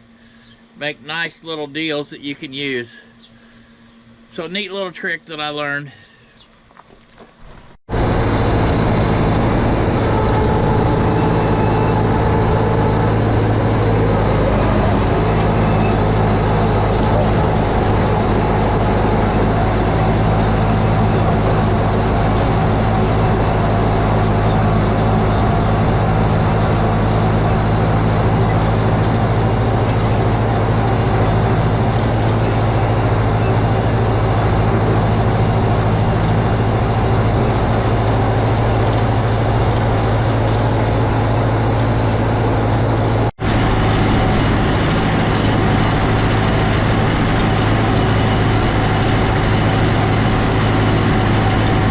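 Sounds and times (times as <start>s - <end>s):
tractor engine running: 6.8s - 51.9s.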